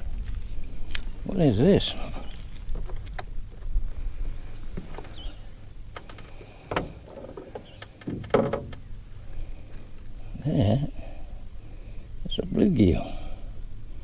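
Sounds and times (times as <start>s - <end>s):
knocks of fishing gear: 8.0s - 8.8s.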